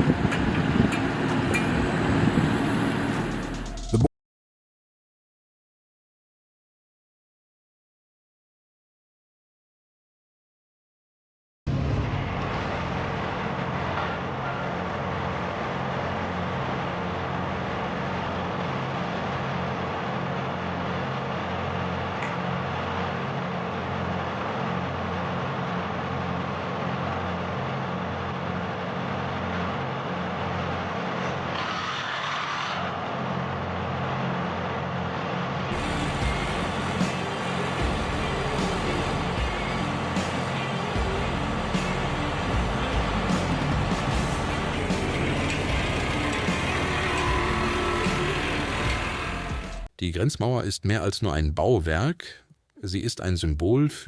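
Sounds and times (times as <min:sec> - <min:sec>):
heavy diesel engine rumbling: 0:00.0 - 0:04.0, 0:11.7 - 0:31.6, 0:33.0 - 0:49.9.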